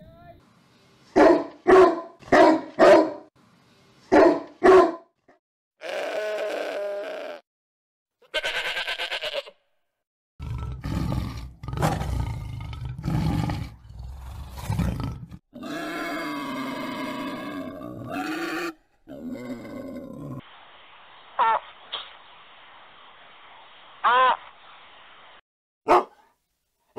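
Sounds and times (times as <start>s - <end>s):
sheep bleating: 5.8s - 7.4s, 8.2s - 9.7s
tiger roaring: 10.4s - 20.4s
pig call: 15.6s - 18.8s.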